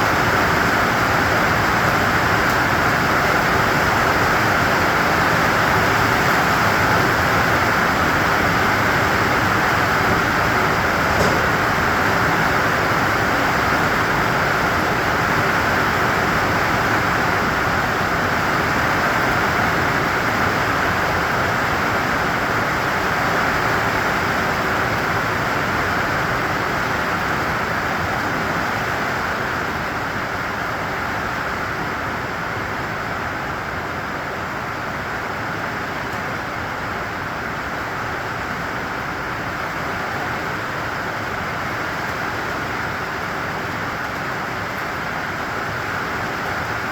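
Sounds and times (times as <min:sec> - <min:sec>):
steady rain: 0:00.0 - 0:46.9.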